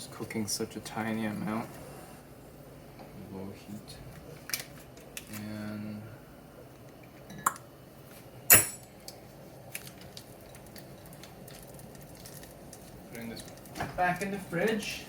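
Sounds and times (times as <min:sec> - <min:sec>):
kitchenware clinking: 0:08.5 - 0:09.0.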